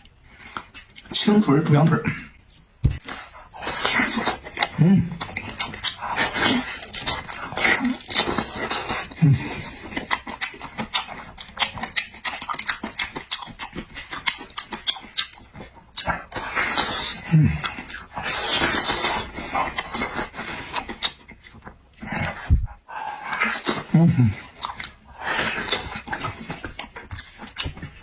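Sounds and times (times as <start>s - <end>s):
wet chewing and smacking: 0.0s - 1.2s, 2.4s - 28.0s
low grunts: 4.7s - 5.2s, 23.9s - 24.4s.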